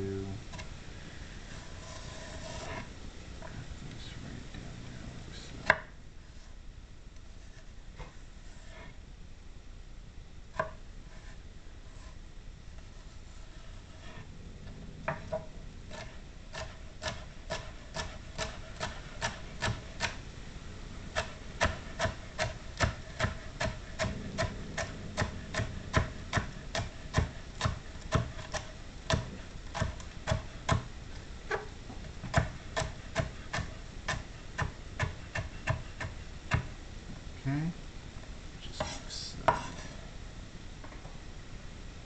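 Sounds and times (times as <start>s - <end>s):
knife chopping on cutting board: 15.1s - 20.2s, 21.2s - 30.9s, 31.5s - 36.7s, 38.8s - 39.9s.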